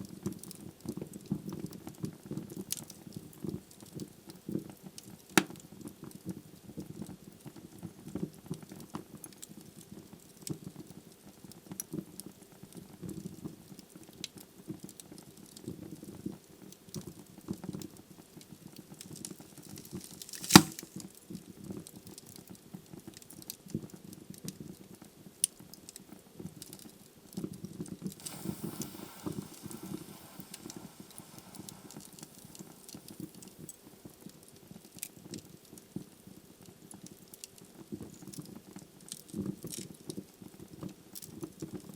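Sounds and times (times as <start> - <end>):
logs crackling in a fireplace: 13.7 - 41.9.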